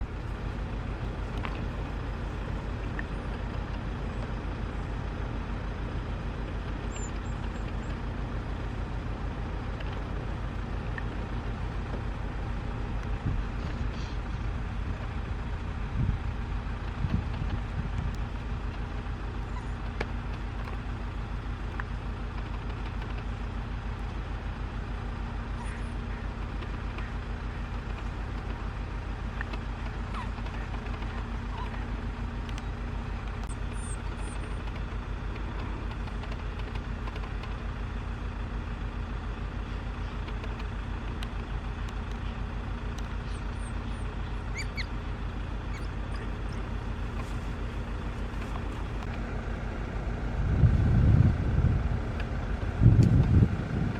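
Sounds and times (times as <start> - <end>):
vehicle engine idling: 0.0 - 53.9.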